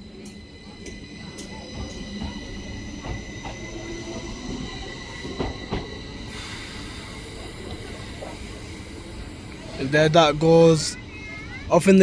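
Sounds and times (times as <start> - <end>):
train low rumble: 0.0 - 11.8
train high whine: 0.0 - 12.0
train wheels clacking: 0.2 - 8.6.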